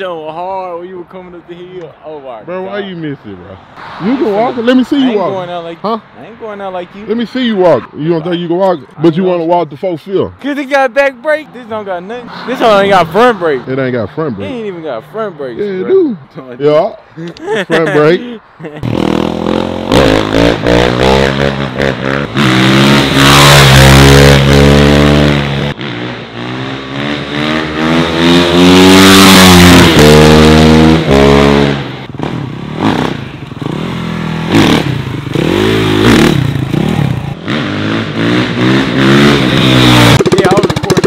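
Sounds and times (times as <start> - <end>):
dirt bike engine revving: 18.8 - 41.0.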